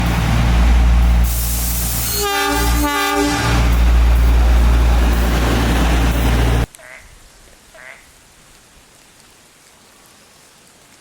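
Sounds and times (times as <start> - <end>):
train rumbling: 0.0 - 6.7
train horn blasts: 1.2 - 4.0.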